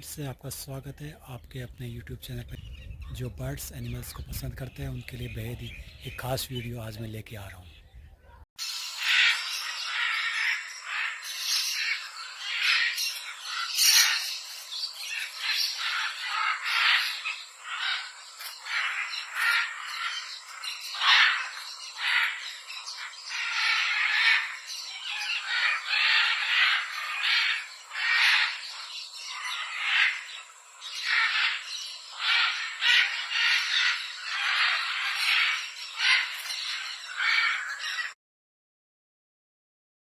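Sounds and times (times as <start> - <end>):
parrot squawking: 8.6 - 14.3, 15.2 - 20.3, 20.9 - 30.3, 31.0 - 38.2.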